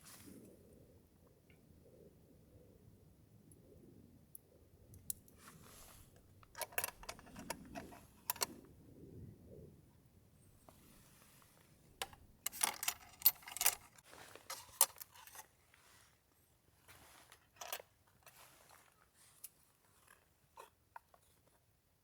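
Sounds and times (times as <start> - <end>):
small things rustling and clicking: 4.9 - 8.7, 10.6 - 16.1, 16.8 - 21.7.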